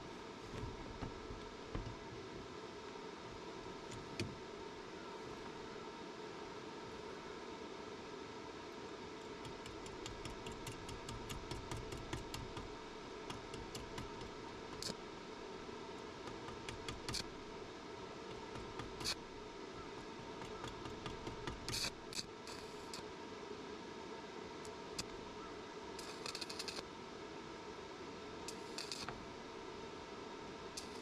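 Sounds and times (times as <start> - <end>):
steady hum: 0.0 - 31.0.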